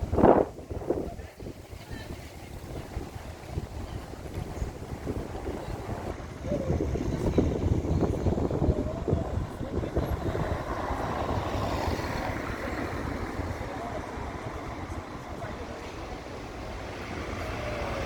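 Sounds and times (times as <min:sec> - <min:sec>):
road traffic: 0:00.0 - 0:18.0
wind buffeting microphone: 0:00.0 - 0:18.0
vehicle passing: 0:04.7 - 0:18.0.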